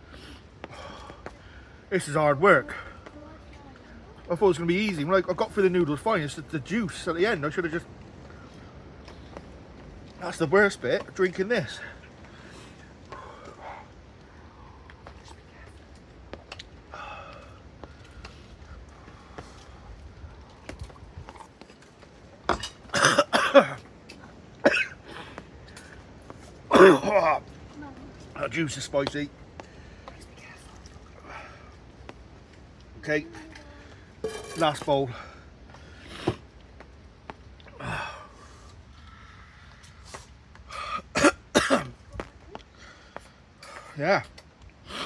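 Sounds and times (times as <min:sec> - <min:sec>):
man coughing: 0:22.9 - 0:23.8, 0:24.6 - 0:25.1, 0:26.7 - 0:27.4, 0:40.9 - 0:42.0
man gasping and breathing hard: 0:37.8 - 0:39.4.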